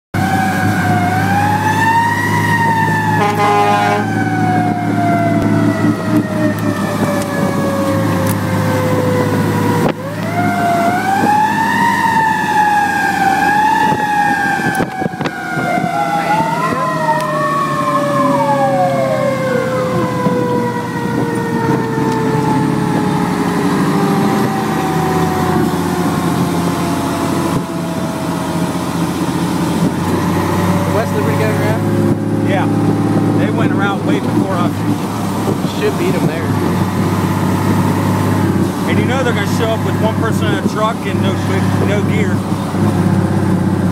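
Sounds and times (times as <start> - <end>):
wavering siren tone: 0.2 - 34.7
fire engine siren wailing: 0.2 - 43.9
truck engine running: 0.2 - 43.9.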